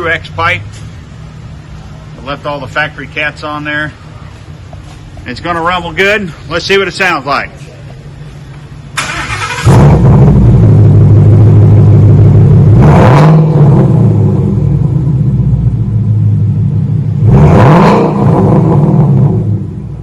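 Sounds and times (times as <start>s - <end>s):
engine idling with deep rumble: 0.0s - 17.5s
car engine starting: 7.4s - 20.0s
engine revving: 9.0s - 15.8s, 16.4s - 20.0s.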